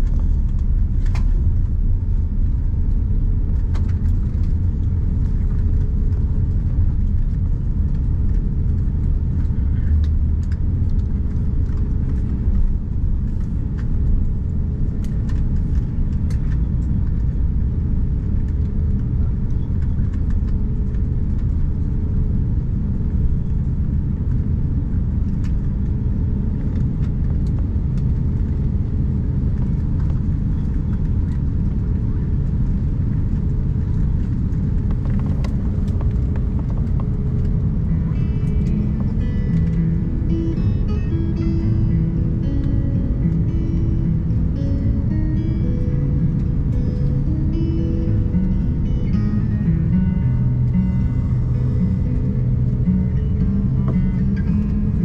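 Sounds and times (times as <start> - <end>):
aircraft cabin rumble: 0.0 - 55.0.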